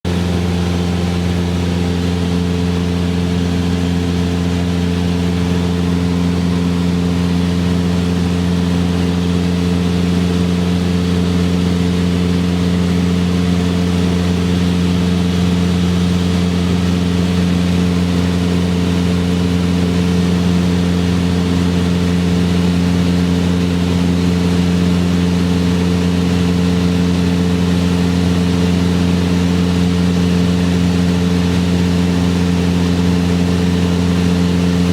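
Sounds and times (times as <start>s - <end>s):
aircraft engine and propeller droning: 0.1s - 34.9s.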